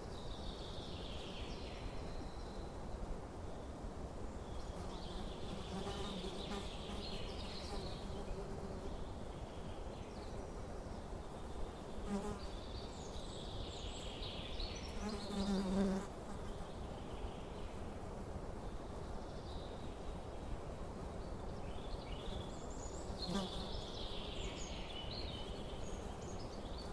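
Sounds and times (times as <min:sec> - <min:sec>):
flying insect buzzing: 0:15.0 - 0:16.5, 0:23.3 - 0:23.8.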